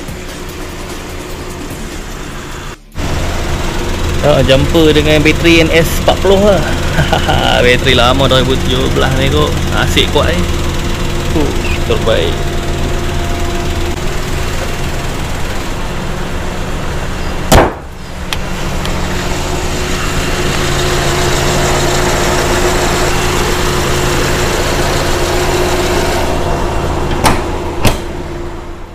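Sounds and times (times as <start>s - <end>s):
car engine idling: 0.0s - 28.9s
sharp knock: 17.5s - 17.9s.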